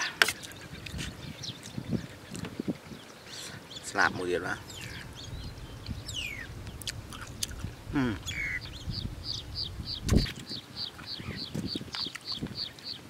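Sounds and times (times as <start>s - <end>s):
close chewing: 0.2s - 2.5s, 6.7s - 7.8s.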